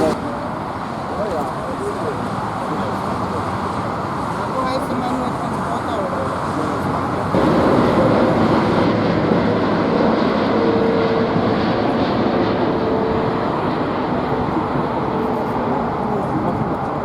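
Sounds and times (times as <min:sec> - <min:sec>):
jet engines roaring: 0:00.0 - 0:17.0
steady whine: 0:07.2 - 0:17.0.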